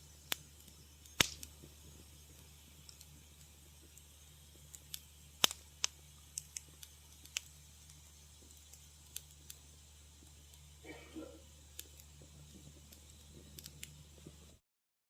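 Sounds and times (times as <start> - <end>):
faint low hum: 0.0 - 14.6
fireplace fire crackling and popping: 0.0 - 14.6.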